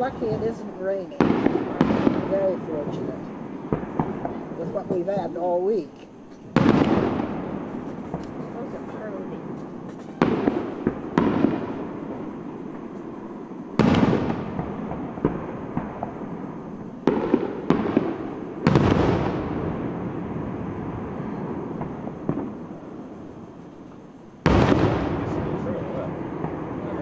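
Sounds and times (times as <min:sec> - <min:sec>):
firework booms with rolling echo: 0:00.0 - 0:27.0
small firework pops: 0:03.7 - 0:05.0, 0:05.9 - 0:08.7, 0:09.5 - 0:11.8, 0:13.8 - 0:16.3, 0:17.0 - 0:20.0, 0:21.8 - 0:22.6, 0:23.8 - 0:27.0.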